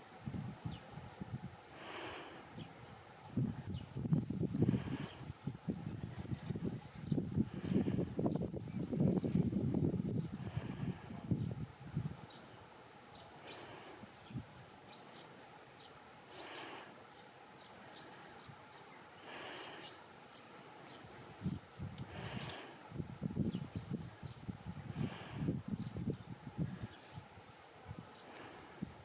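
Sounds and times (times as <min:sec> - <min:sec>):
insects chirring: 0:00.1 - 0:29.0
wind buffeting microphone: 0:00.2 - 0:01.6, 0:02.4 - 0:12.3, 0:21.2 - 0:28.1.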